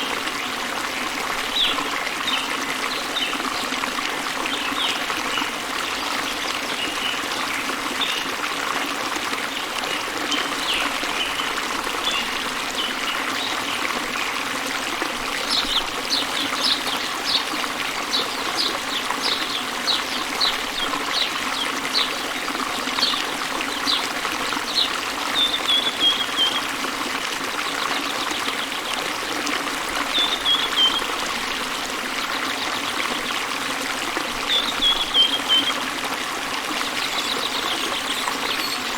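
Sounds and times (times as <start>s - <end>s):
small birds chirping: 36.9s - 38.9s.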